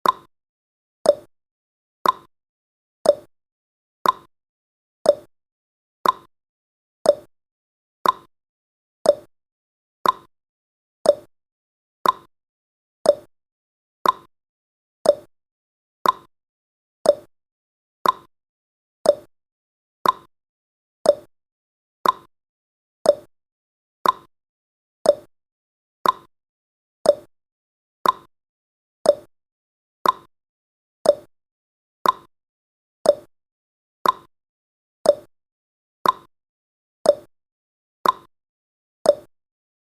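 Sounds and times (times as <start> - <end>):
clock ticking: 2.0 - 2.3, 4.0 - 4.3, 6.0 - 6.3, 8.0 - 8.3, 10.0 - 10.3, 12.0 - 12.3, 14.0 - 14.3, 15.1 - 15.3, 16.0 - 16.3, 18.0 - 18.3, 20.0 - 20.3, 21.1 - 21.3, 22.0 - 22.3, 24.0 - 24.3, 26.0 - 26.3, 28.0 - 28.3, 29.1 - 29.3, 30.0 - 30.3, 31.1 - 31.3, 32.0 - 32.3, 33.1 - 33.3, 34.0 - 34.3, 35.1 - 35.3, 36.0 - 36.3, 38.0 - 38.3, 39.1 - 39.3.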